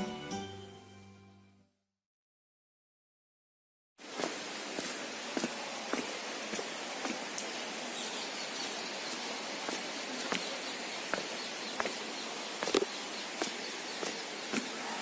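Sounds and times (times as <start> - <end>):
steady outdoor hiss: 4.0 - 15.0
footsteps walking: 4.1 - 15.0.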